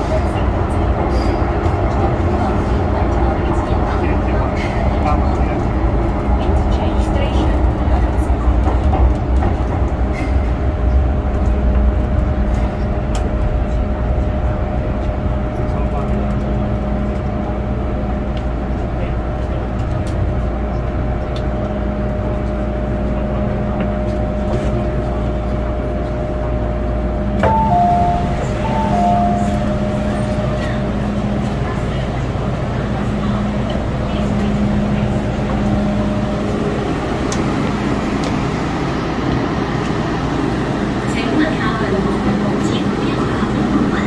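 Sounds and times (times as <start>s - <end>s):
train wheels rumbling: 0.0s - 44.0s.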